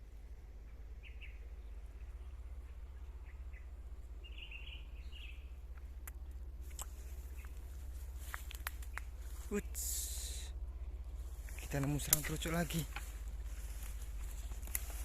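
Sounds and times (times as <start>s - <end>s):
wild birds chirping: 0.0s - 15.0s
sharp clicks: 11.8s - 13.1s.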